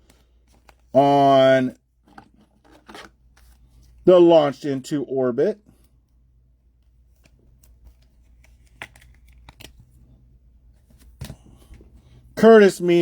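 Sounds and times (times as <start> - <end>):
cards sliding and rustling: 0.0 - 1.0, 2.0 - 4.0, 7.1 - 10.1, 10.8 - 12.2.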